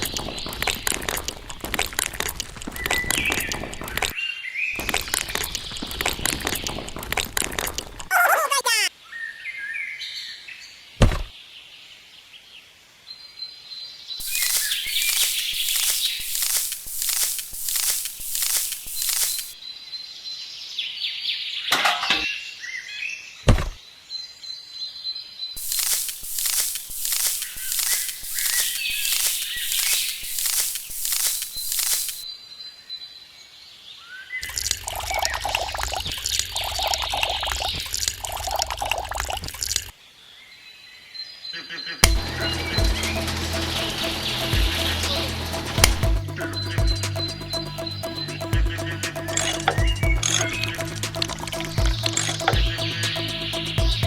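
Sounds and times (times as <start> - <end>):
rapid clicking and scraping: 0.0 - 4.2, 14.2 - 19.6, 25.6 - 32.2, 42.0 - 54.0
birds chirping: 0.0 - 9.3, 14.2 - 19.7, 25.5 - 32.4, 41.3 - 54.0
loud thump: 11.0 - 11.3, 23.5 - 23.8
rhythmic hissing strokes: 14.2 - 19.6, 25.6 - 32.2, 42.1 - 54.0
short bird chirps: 14.2 - 19.6, 25.6 - 32.3.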